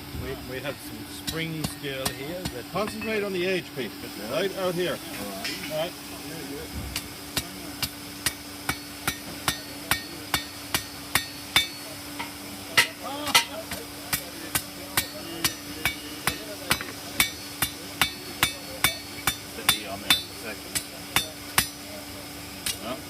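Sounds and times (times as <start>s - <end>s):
hammer ringing on anvil: 1.3s - 3.3s, 7.8s - 21.8s.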